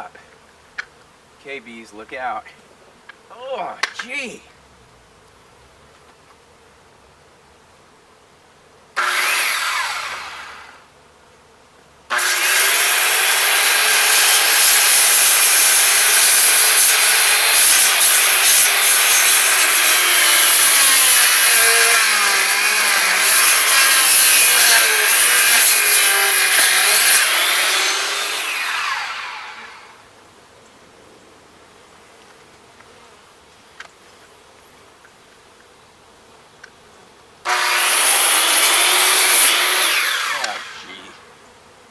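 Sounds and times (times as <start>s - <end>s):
electric saw cutting wood: 9.0s - 10.9s, 12.1s - 30.0s, 37.5s - 41.2s.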